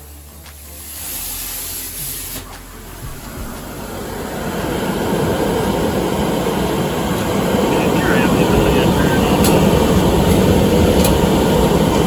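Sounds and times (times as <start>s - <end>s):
exhaust fan roaring: 0.0s - 12.0s.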